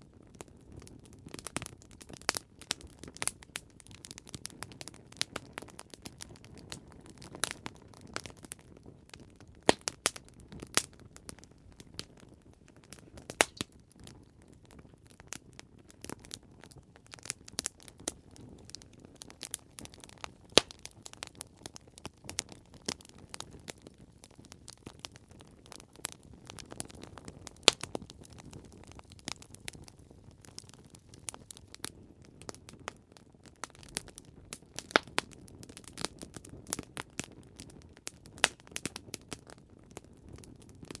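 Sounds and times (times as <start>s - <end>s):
campfire crackling and popping: 0.0s - 41.0s
low rumble of flames: 0.0s - 41.0s.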